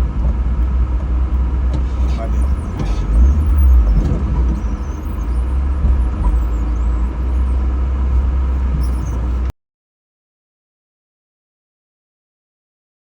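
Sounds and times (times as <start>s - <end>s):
car engine and road rumble: 0.0s - 9.5s.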